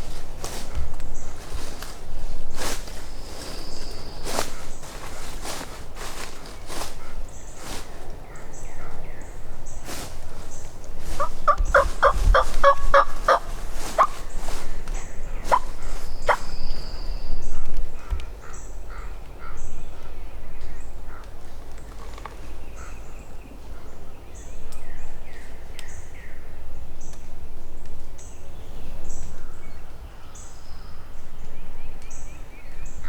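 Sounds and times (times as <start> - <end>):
turkey gobbling: 11.1 - 14.5, 15.4 - 16.5.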